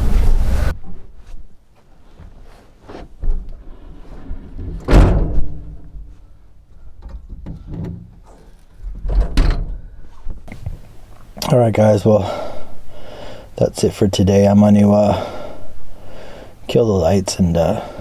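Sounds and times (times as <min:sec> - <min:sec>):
objects being handled and set down: 0:10.5 - 0:11.5.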